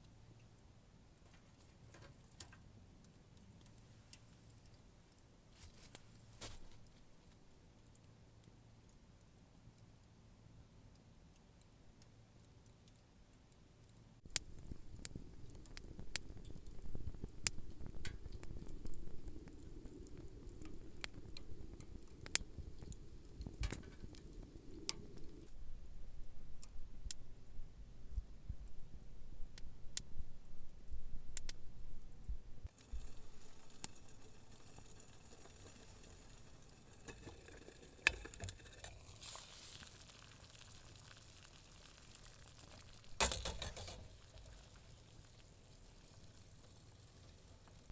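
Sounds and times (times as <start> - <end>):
campfire crackling: 0.0 - 47.9.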